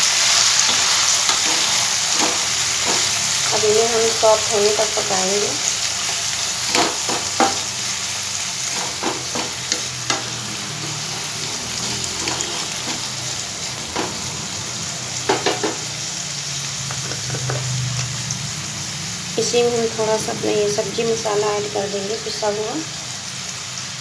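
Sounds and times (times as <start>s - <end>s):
vegetables sizzling in oil: 0.0s - 24.0s
spatula scraping and tapping pan: 0.6s - 3.1s, 8.7s - 11.1s, 15.3s - 15.9s, 16.8s - 17.8s.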